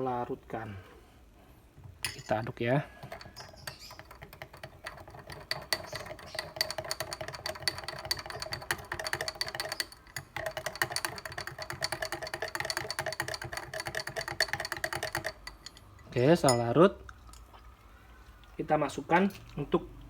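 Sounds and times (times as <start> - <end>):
spoon clinking against glass: 2.0 - 17.5.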